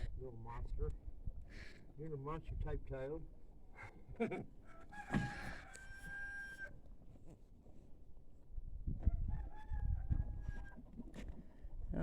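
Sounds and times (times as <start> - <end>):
rooster crowing: 4.7 - 6.7, 9.1 - 10.8.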